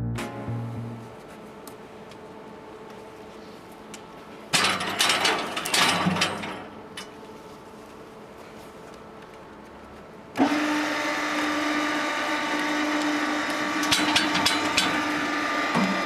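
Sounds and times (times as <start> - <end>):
intro music: 0.0 - 1.3
firewood machine rattling clatter: 4.5 - 7.1, 13.5 - 16.0.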